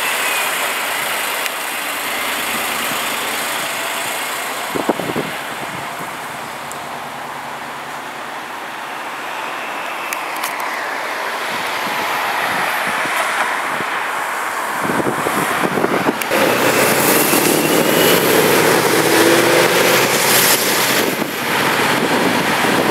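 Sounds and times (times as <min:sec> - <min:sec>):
car engine accelerating past: 0:16.3 - 0:22.8.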